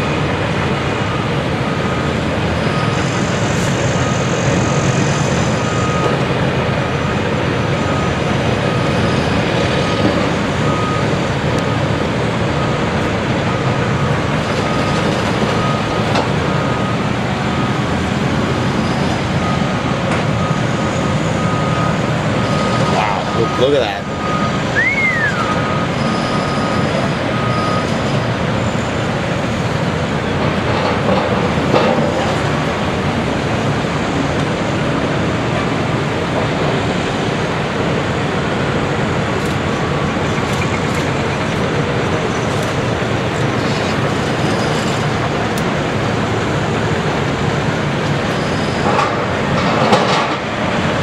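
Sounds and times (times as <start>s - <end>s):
excavator engine rumbling: 0.0s - 51.0s.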